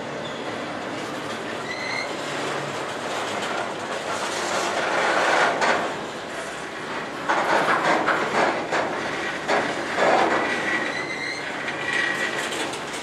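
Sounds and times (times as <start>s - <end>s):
faint wheel squeal: 0.2s - 0.6s, 1.6s - 2.3s, 10.6s - 12.4s
freight train wheels clacking: 0.5s - 13.0s.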